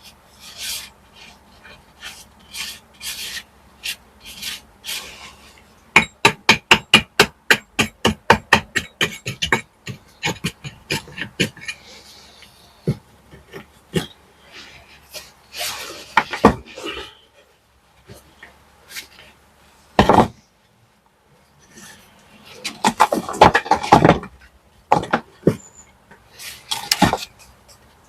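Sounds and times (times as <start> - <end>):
tool scraping brickwork: 0.0 - 17.2, 19.9 - 20.4, 21.6 - 27.9.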